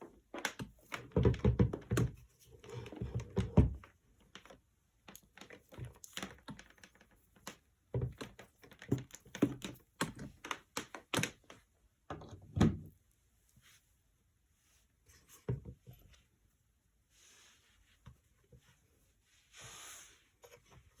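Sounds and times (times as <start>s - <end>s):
hard objects clicking and knocking: 0.0s - 12.8s.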